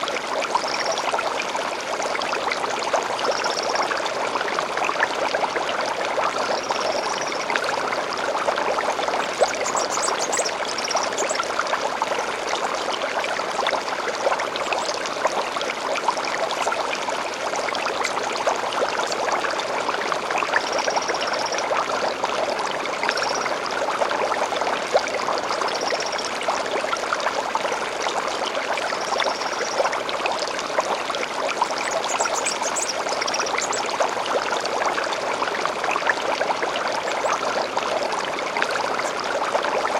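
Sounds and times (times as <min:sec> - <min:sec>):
stream babbling over stones: 0:00.0 - 0:39.9
high bird calls and trills: 0:09.4 - 0:11.4.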